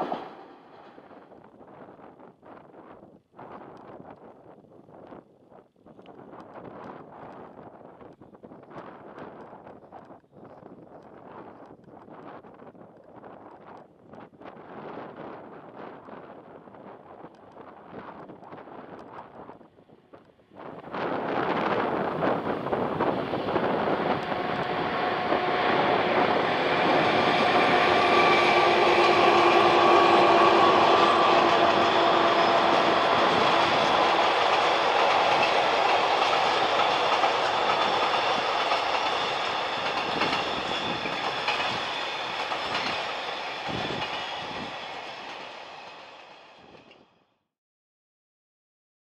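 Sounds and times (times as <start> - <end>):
train rolling noise: 0.0 - 2.0, 14.5 - 47.2
diesel locomotive engines humming: 21.5 - 46.6
wheels clicking over rail joints: 32.2 - 44.3.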